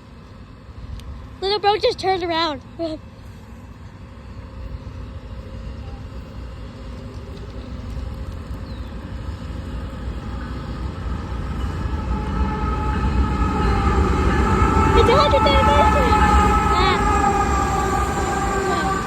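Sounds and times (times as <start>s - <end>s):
train rumbling: 0.0s - 19.0s
high steady tones: 10.3s - 19.0s.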